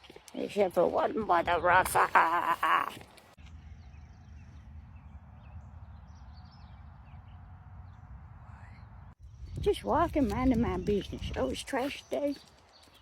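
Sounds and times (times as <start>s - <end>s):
low rumble of wind or traffic: 3.1s - 12.9s.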